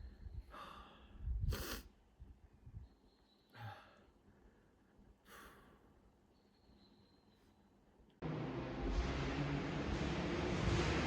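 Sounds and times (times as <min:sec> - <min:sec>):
person breathing hard: 0:00.4 - 0:01.9, 0:03.6 - 0:05.9.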